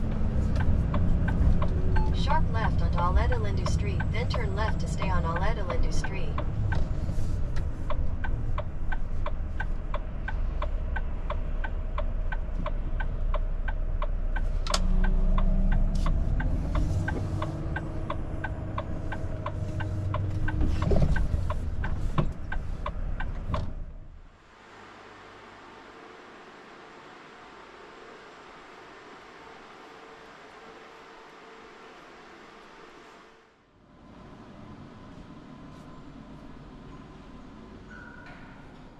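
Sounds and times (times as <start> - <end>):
turn signal ticking: 0.0 - 23.9
diesel engine running: 0.0 - 24.4
road noise: 0.0 - 38.0.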